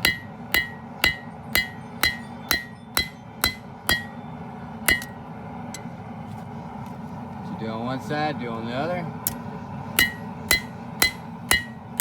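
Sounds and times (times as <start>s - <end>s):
hammer striking steel on anvil: 0.0s - 5.2s, 9.2s - 9.4s, 10.0s - 12.0s.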